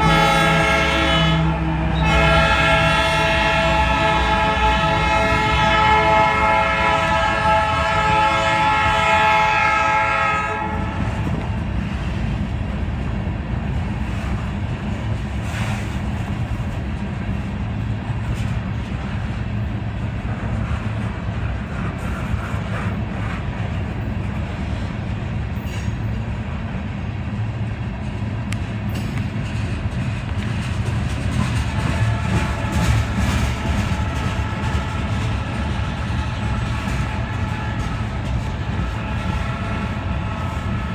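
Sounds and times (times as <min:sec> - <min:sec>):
locomotive horn chord: 0:00.0 - 0:11.2, 0:31.8 - 0:40.9
train cars rumbling past: 0:00.0 - 0:40.9.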